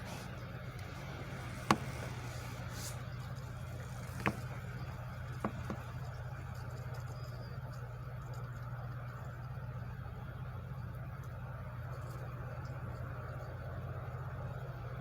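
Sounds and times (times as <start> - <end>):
low machinery hum: 0.0 - 15.0
light knock: 0.8 - 3.0, 4.1 - 4.6, 5.4 - 5.9.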